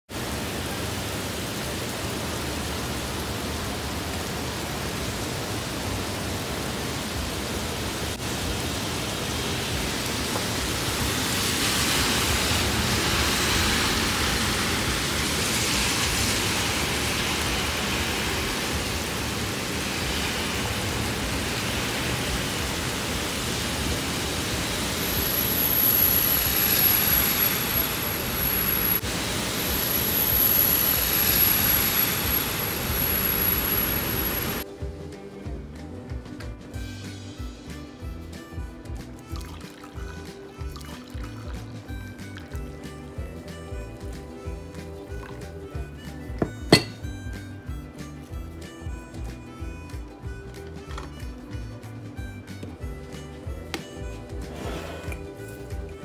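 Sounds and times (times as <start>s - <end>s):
heavy rain on a street: 0.1s - 34.6s.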